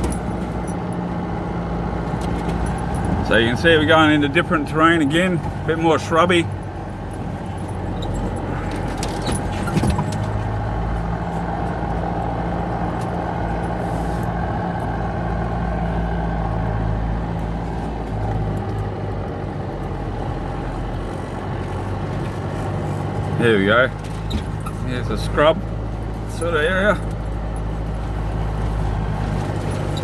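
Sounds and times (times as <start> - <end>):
engine running at low speed: 0.0 - 30.0
road noise: 0.0 - 30.0
rattles and knocks: 7.1 - 11.1.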